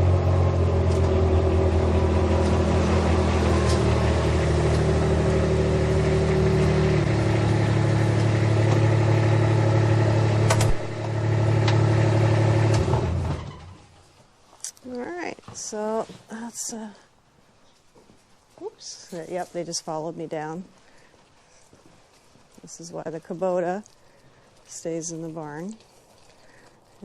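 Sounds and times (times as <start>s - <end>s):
utility vehicle engine running: 0.0s - 13.8s.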